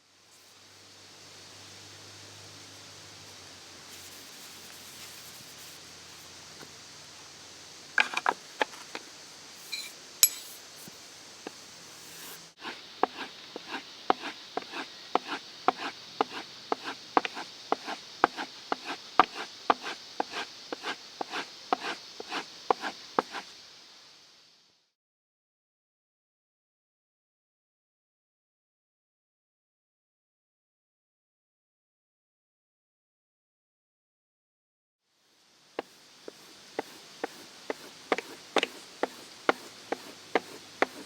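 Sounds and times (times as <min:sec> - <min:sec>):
chisel sharpening strokes: 0:09.6 - 0:10.6, 0:12.0 - 0:23.5, 0:35.8 - 0:41.0
brief metallic ring: 0:09.7 - 0:10.5.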